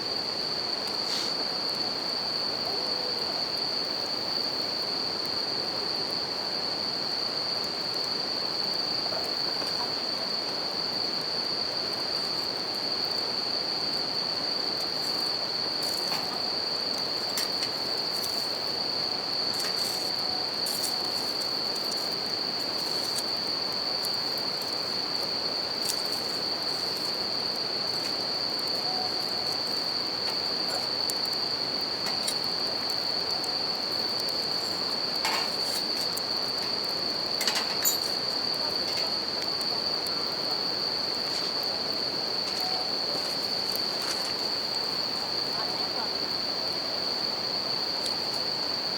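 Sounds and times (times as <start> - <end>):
crickets trilling: 0.0 - 48.9
campfire crackling: 7.5 - 45.6.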